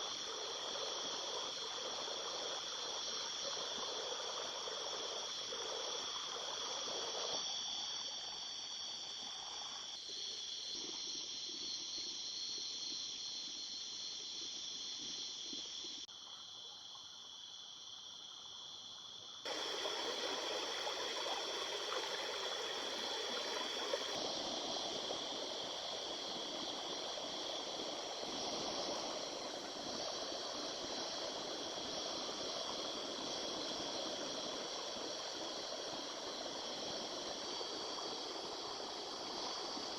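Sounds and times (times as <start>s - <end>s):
insects chirring: 0.0s - 39.9s
small river running: 19.5s - 39.9s.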